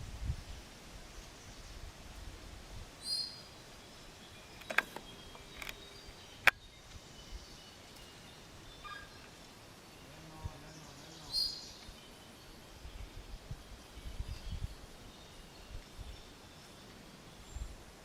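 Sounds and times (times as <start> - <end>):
forest birds calling: 3.0 - 18.0
sharp clicks: 4.6 - 5.8.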